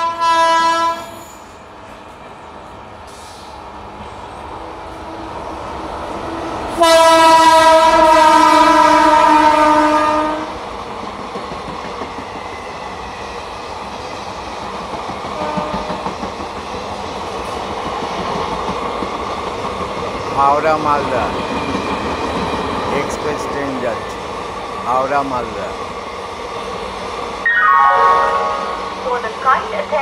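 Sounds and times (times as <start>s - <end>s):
loud train horn: 0.0s - 1.2s, 6.7s - 10.5s, 15.4s - 16.0s, 27.5s - 29.7s
train wheels rumbling and clattering: 10.3s - 27.4s.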